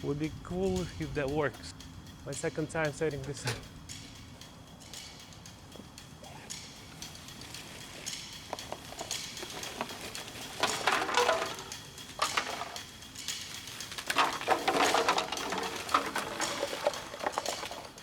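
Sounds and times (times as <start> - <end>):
trash rustling and clattering: 8.1 - 18.0.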